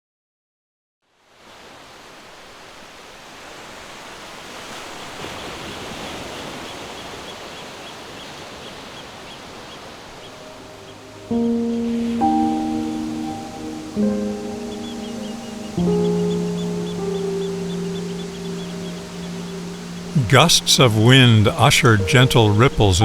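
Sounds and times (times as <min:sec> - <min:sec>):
waves rushing: 0:01.2 - 0:23.0
sustained low music notes: 0:10.6 - 0:23.0.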